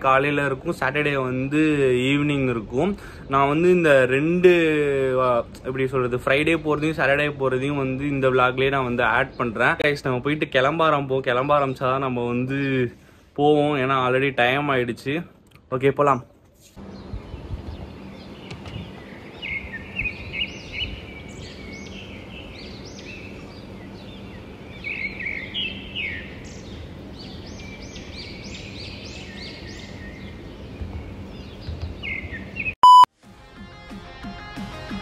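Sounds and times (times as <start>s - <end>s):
flock of birds chirping: 16.8s - 32.8s
loud electronic beep: 32.8s - 33.1s.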